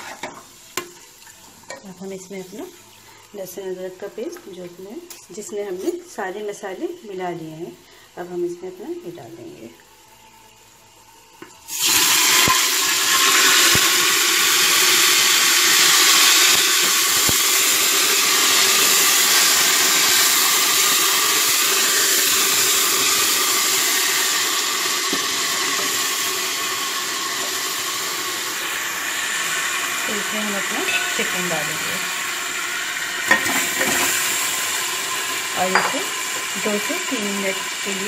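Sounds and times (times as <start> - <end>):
paste sizzling in hot oil: 9.8 - 38.0.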